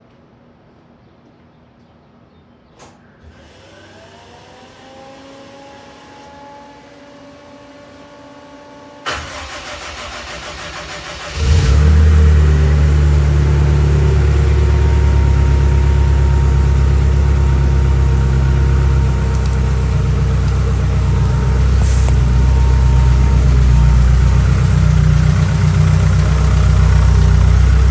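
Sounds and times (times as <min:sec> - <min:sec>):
car engine idling: 0:09.1 - 0:27.9.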